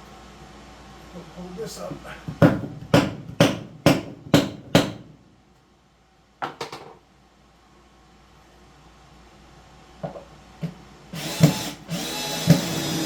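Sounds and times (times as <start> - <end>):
hammer striking wood: 2.3 - 5.1.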